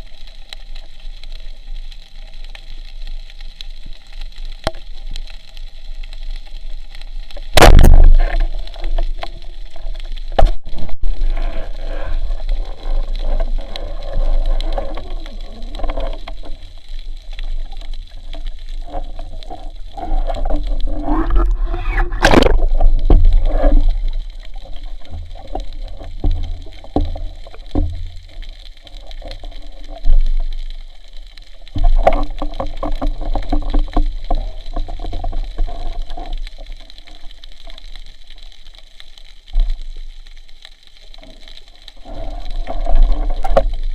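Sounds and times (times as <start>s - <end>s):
underwater bubbling and gurgling: 0.0s - 43.9s
knocks and scrapes: 7.3s - 37.8s, 41.1s - 43.9s
loud sudden thumps: 7.5s - 8.3s, 22.0s - 22.6s.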